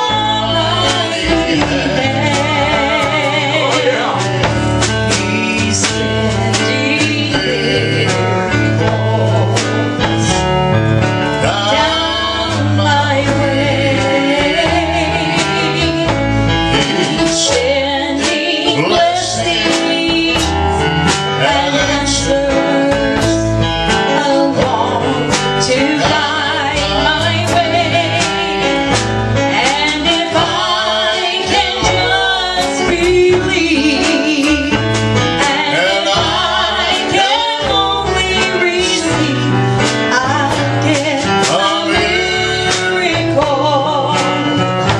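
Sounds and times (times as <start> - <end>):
man and woman singing duet: 0.0 - 10.5, 11.1 - 44.9
guitar: 0.0 - 44.9
percussive strikes: 0.0 - 44.9.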